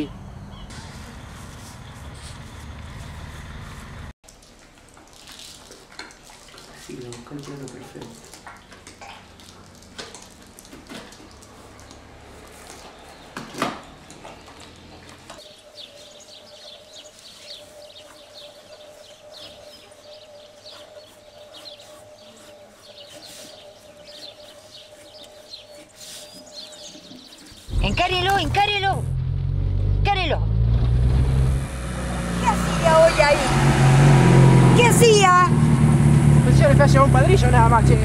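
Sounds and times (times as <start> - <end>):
small birds chirping: 0.0 - 3.8, 11.4 - 28.9.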